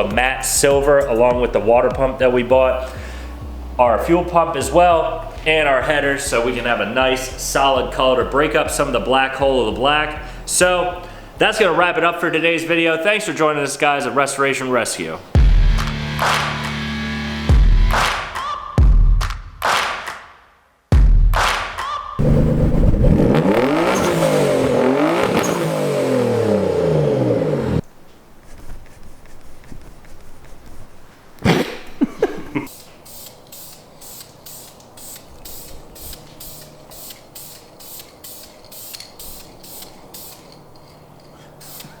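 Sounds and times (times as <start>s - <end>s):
car engine revving: 22.2s - 27.8s.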